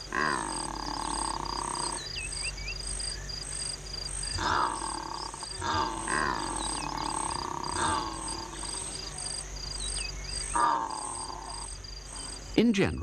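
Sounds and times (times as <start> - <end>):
high pulsing insect trill: 0.0 - 13.0
secretary birds groaning: 4.4 - 9.8, 10.4 - 13.0.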